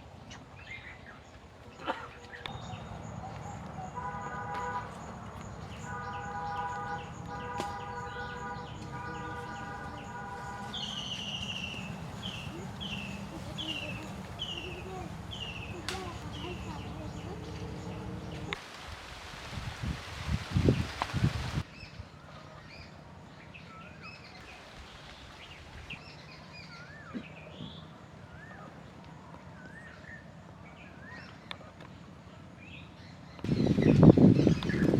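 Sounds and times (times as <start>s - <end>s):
birds chirping: 0.2s - 18.6s, 29.6s - 34.9s
drawn-out bird calls: 2.1s - 18.6s.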